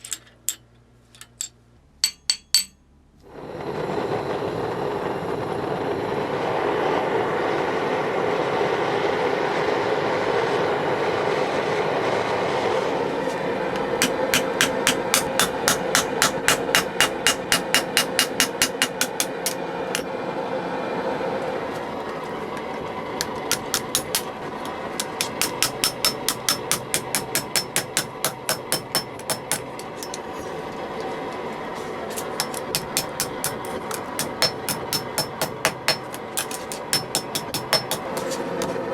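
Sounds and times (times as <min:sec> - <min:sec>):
steady background hum: 0:00.0 - 0:38.9
hammer striking steel on anvil: 0:01.4 - 0:02.8, 0:14.0 - 0:20.1, 0:23.2 - 0:30.4, 0:32.3 - 0:38.8.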